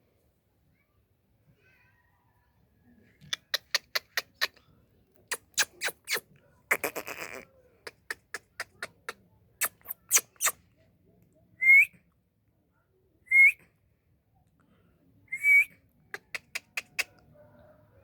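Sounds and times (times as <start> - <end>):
parrot clicking calls: 3.3 - 4.6, 5.3 - 10.6, 16.2 - 17.2
parrot whistles: 9.6 - 10.6.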